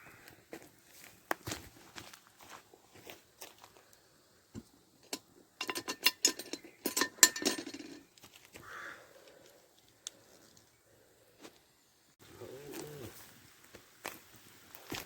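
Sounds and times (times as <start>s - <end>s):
metal cookware and cutlery clinking: 5.0s - 8.1s.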